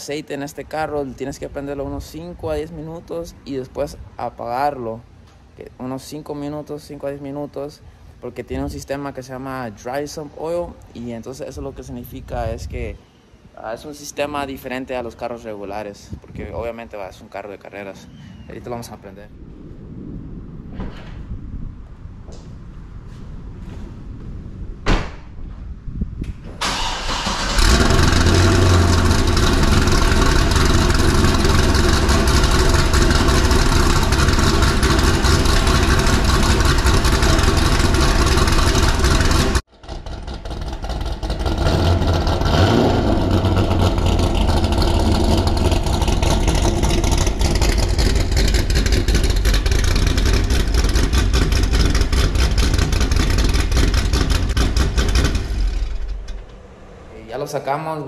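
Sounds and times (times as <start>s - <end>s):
car engine cranking and starting: 26.5s - 57.3s
loud engine idle: 27.1s - 56.1s.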